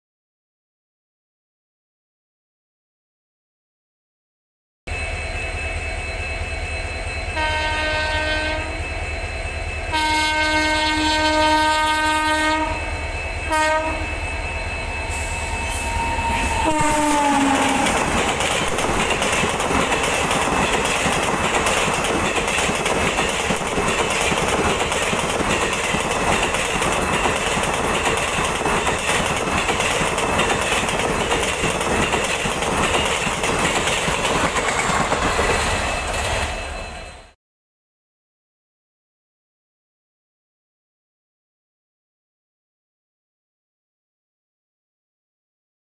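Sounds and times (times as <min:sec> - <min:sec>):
locomotive air horn blasts: 0:07.4 - 0:08.8, 0:09.9 - 0:12.9, 0:13.5 - 0:14.2, 0:15.7 - 0:18.0
train coaches rushing past: 0:12.2 - 0:37.4.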